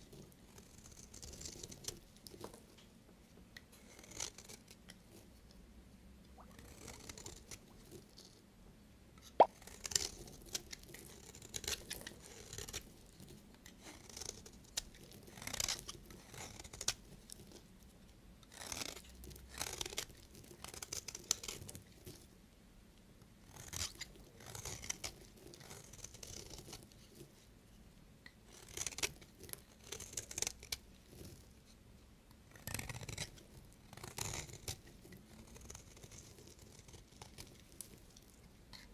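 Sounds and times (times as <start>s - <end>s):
knife crunching through soap: 9.7s - 12.9s, 18.5s - 22.2s, 34.0s - 38.9s.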